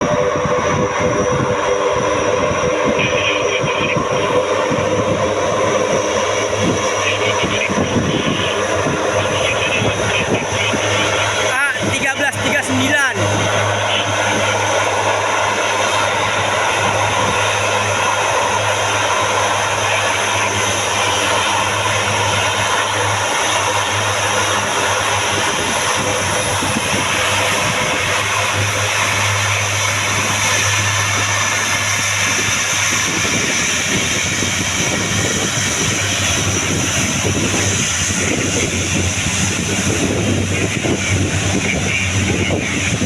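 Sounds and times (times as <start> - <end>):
turboprop propeller drone: 0.0 - 43.0.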